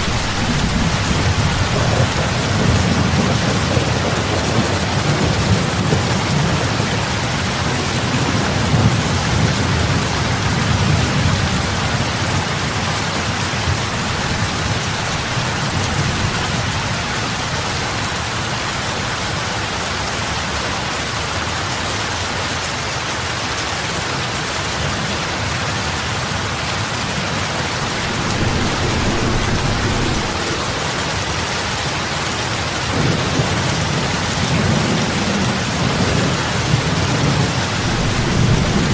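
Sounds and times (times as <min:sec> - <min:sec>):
heavy rain on water: 0:00.0 - 0:38.9
low rumble: 0:27.6 - 0:31.5.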